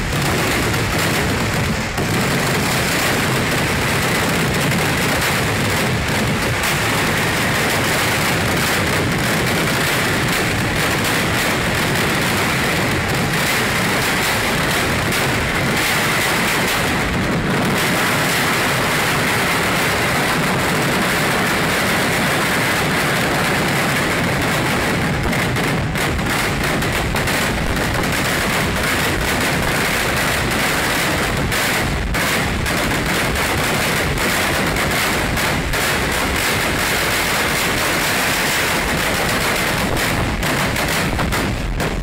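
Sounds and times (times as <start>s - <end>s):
fireworks crackling barrage: 0.0s - 42.0s.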